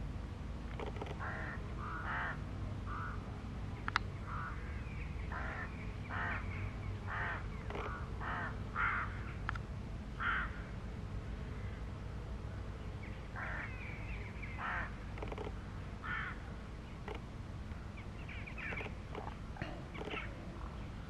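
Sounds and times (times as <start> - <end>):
steady low rumble: 0.0 - 21.0
bird calling: 4.2 - 9.4, 17.9 - 21.0
sharp ticks: 15.2 - 15.6.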